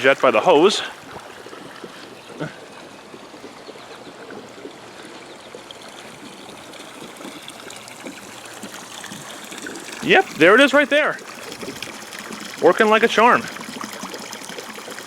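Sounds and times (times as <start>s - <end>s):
pool water splashing and trickling: 0.0s - 15.0s
air bubbling out of pipes: 3.5s - 15.0s.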